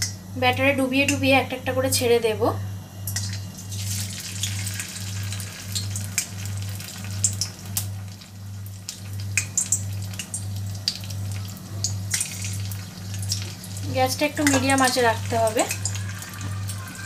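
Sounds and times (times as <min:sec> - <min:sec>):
deep-frying sizzle with pops: 0:00.0 - 0:00.3, 0:03.0 - 0:17.0.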